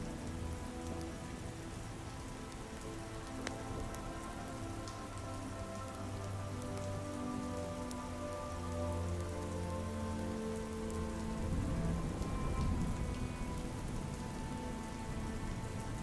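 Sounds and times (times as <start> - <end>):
small ticks and drips: 0.0 - 16.0
soft rain: 0.0 - 16.0.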